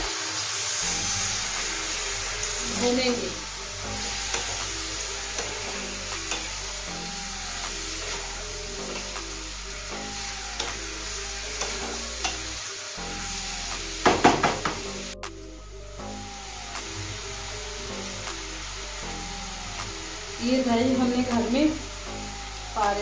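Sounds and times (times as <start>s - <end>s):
food sizzling in oil: 0.0s - 15.2s, 15.9s - 23.0s
soft background music: 0.0s - 23.0s
louder knocks: 14.1s - 14.8s.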